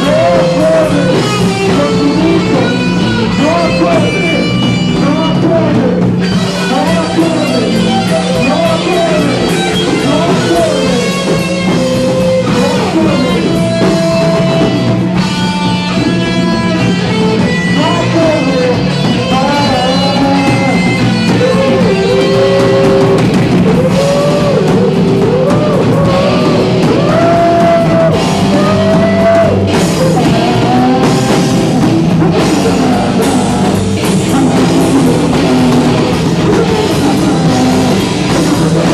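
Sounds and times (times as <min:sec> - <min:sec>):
drum kit: 0:00.0 - 0:38.9
guitar with bending notes: 0:00.0 - 0:38.9
live rock band playing: 0:00.0 - 0:38.9.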